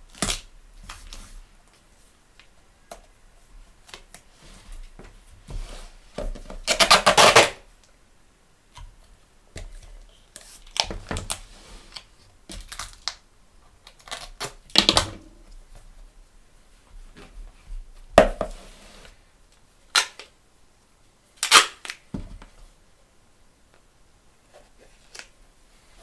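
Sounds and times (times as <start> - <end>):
sticky tape pulled off roll: 6.7 - 7.6, 21.4 - 22.0.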